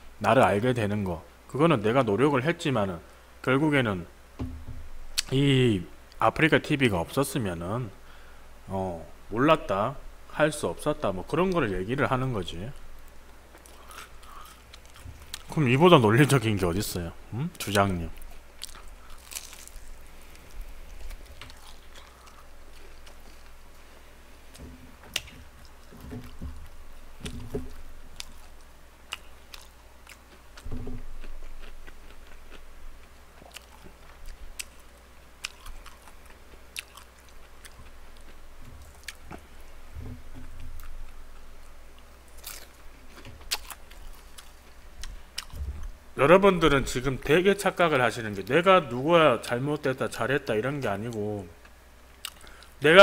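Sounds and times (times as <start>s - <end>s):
man chewing food: 13.0s - 15.5s, 18.2s - 46.0s, 51.7s - 52.8s.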